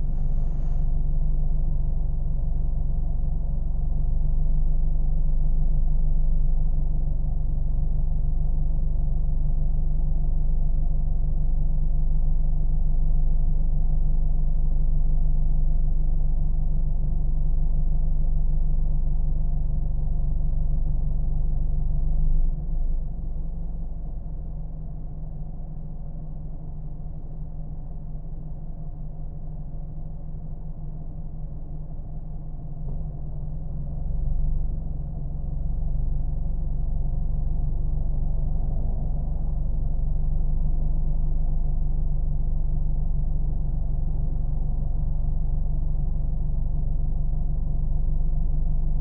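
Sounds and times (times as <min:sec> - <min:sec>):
car engine running: 0:00.0 - 0:04.0
car engine droning: 0:00.0 - 0:04.2, 0:32.0 - 0:49.0.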